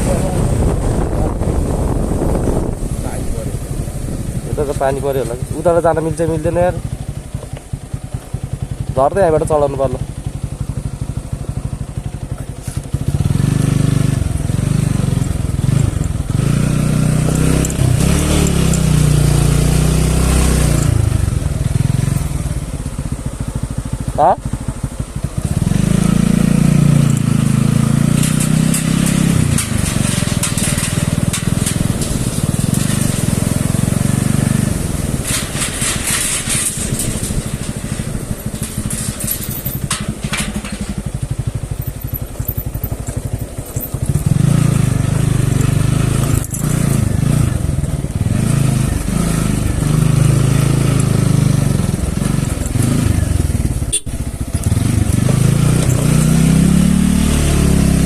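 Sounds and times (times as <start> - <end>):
motorcycle engine running: 0.0 - 58.0
clicks and rattles: 28.0 - 44.4, 45.5 - 48.2, 50.4 - 56.5.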